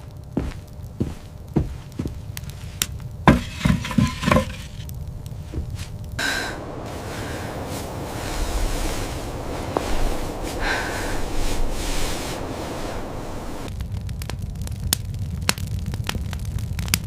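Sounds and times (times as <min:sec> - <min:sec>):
steady hiss: 0:00.0 - 0:13.7
sharp knocks and cracks: 0:02.8 - 0:04.9.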